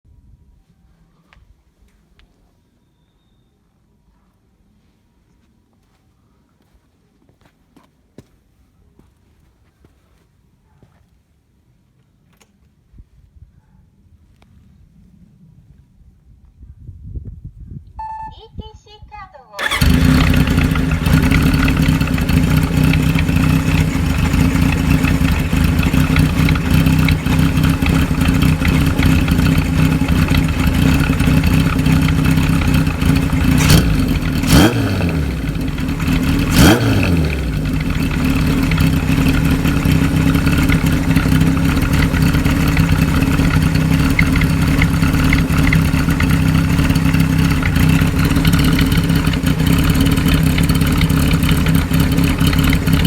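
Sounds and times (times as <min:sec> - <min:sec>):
motorcycle exhaust idling: 0:19.6 - 0:53.0
motorcycle throttle blips: 0:19.6 - 0:53.0.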